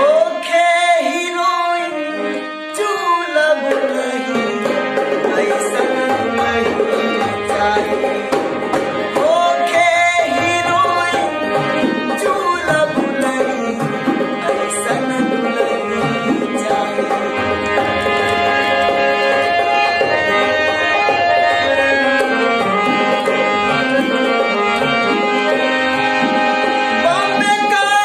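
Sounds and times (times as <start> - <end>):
tabla playing a rhythm: 0.0 - 28.0
sustained sliding melody: 16.6 - 27.4.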